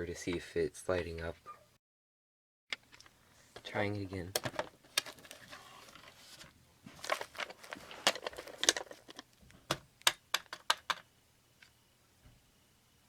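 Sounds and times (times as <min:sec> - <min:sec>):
plastic rustling: 0:04.3 - 0:09.3.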